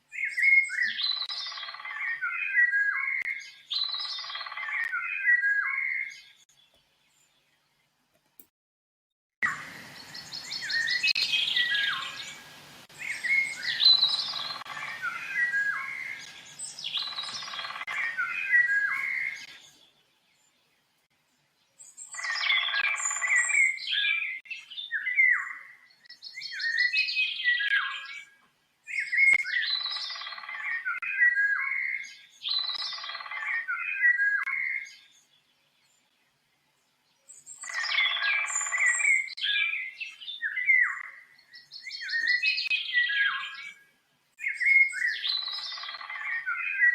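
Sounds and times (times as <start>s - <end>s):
songbird chirping: 0.0s - 8.5s, 9.4s - 46.9s.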